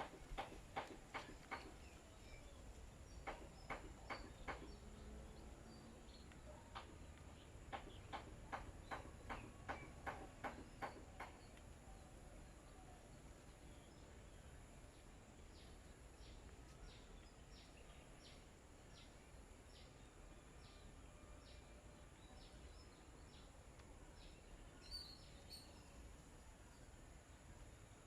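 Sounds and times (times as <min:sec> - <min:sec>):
steady hiss: 0:00.0 - 0:20.2
bird chirp: 0:00.0 - 0:27.0.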